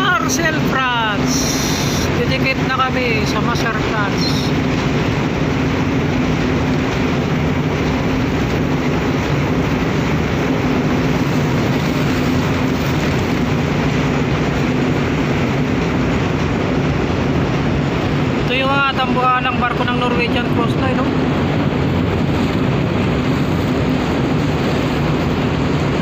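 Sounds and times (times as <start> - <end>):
rushing noise: 0.0 - 26.0
ship engines droning: 0.0 - 26.0.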